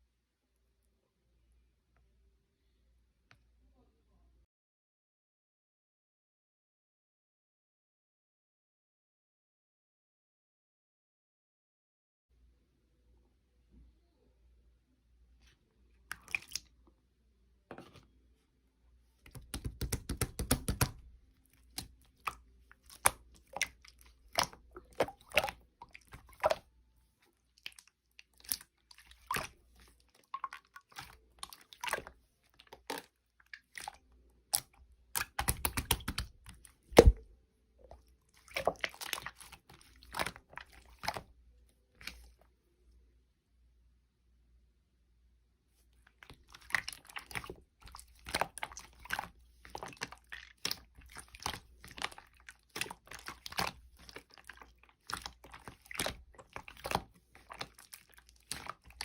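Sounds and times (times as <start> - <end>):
slime crackling and popping: 35.2 - 37.2.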